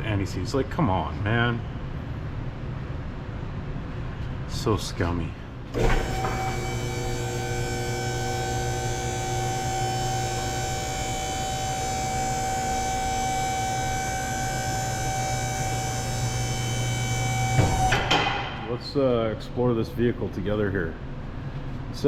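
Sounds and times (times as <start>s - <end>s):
hydraulic lift pump motor whining: 5.7s - 18.8s.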